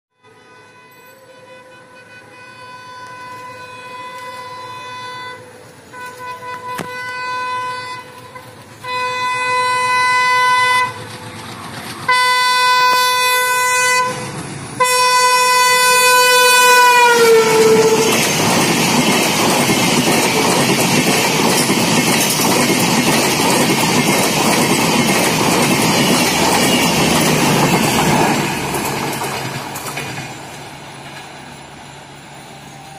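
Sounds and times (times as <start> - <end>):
locomotive horn blasts: 0.1 - 11.0, 12.1 - 18.4
train passing with rushing noise: 0.2 - 32.9.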